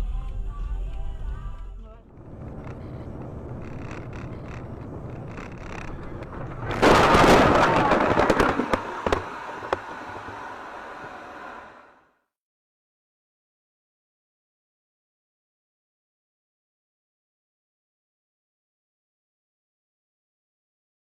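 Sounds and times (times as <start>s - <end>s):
road noise: 2.0s - 12.0s
loud car crash: 2.2s - 12.0s
debris clicking: 2.3s - 10.4s.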